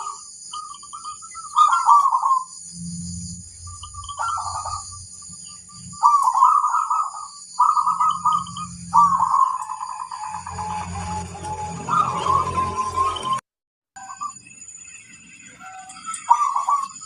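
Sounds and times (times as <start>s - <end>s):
dove cooing: 1.3s - 2.5s, 3.8s - 5.0s, 5.9s - 10.4s, 16.2s - 17.0s.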